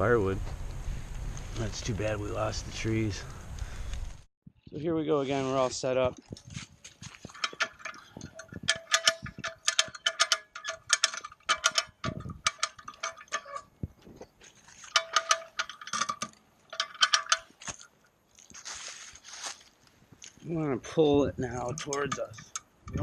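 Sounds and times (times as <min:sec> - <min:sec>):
winch ratchet clicking: 0:07.3 - 0:13.7, 0:14.8 - 0:17.6, 0:21.5 - 0:23.0.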